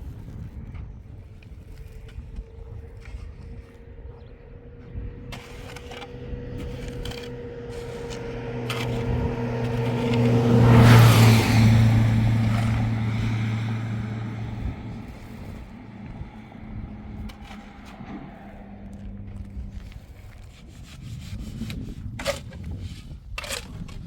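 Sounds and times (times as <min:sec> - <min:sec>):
vehicle driving past: 0:03.0 - 0:21.6.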